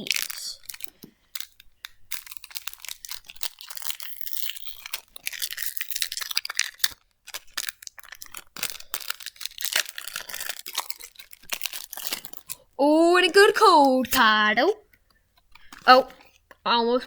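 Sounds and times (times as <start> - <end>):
foil wrapper tearing and crinkling: 0.0 - 12.7.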